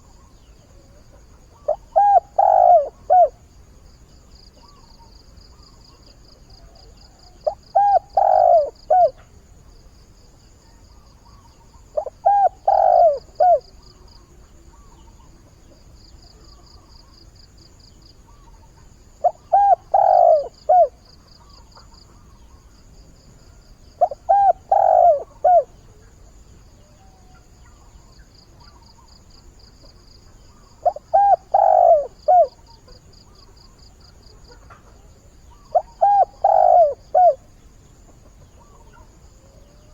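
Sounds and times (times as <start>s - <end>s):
dove cooing: 1.1s - 3.5s, 7.4s - 9.2s, 11.9s - 13.9s, 19.2s - 22.2s, 24.0s - 26.2s, 30.5s - 33.4s, 34.4s - 37.5s.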